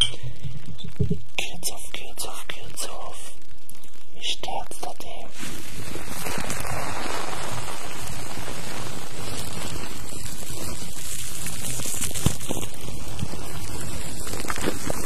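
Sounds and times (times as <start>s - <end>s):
scratchy scrubbing close to microphone: 5.3s - 15.0s.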